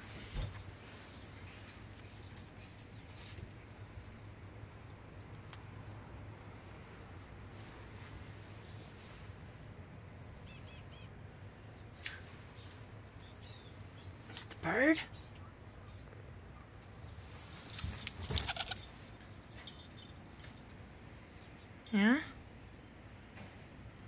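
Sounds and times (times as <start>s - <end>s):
small birds chirping: 0.2s - 20.6s, 21.4s - 23.1s.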